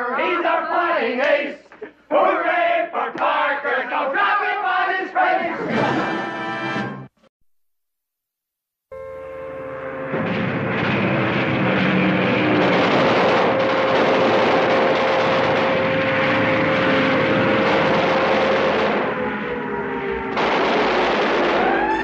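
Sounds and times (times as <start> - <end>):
propeller plane engine droning: 10.0 - 22.0.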